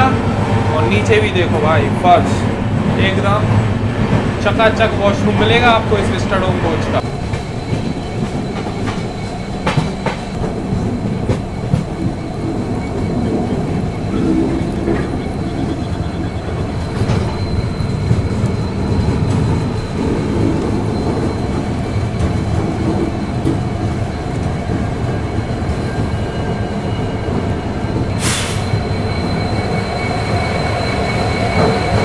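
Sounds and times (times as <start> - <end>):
train rumble: 0.0 - 32.0
train wheels clicking over rail joints: 0.8 - 26.6.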